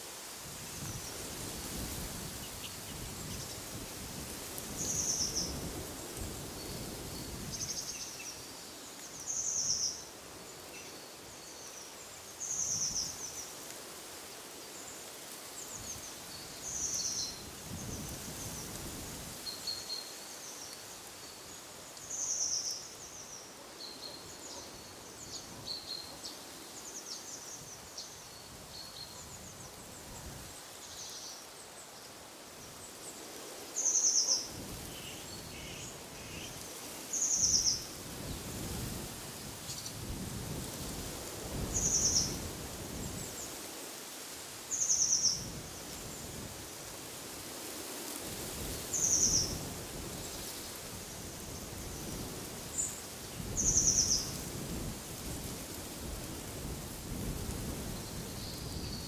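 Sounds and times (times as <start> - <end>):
wind through trees: 0.0 - 59.0
low rumbling wind gusts: 48.2 - 59.0
songbirds singing: 51.5 - 54.4.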